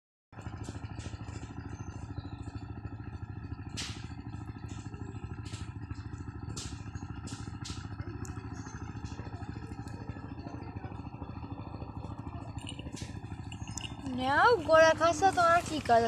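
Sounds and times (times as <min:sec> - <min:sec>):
low fluttering rumble: 0:00.4 - 0:16.0.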